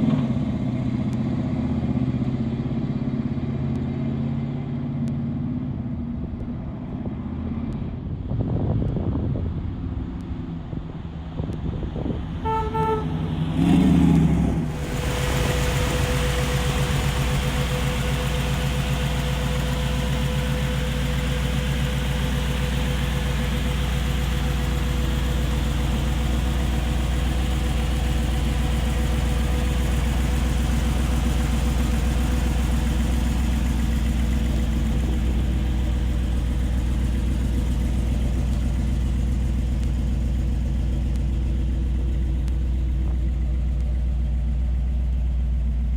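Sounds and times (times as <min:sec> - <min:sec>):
car engine starting and idling: 0:00.0 - 0:45.9
car horn toot: 0:12.4 - 0:13.8.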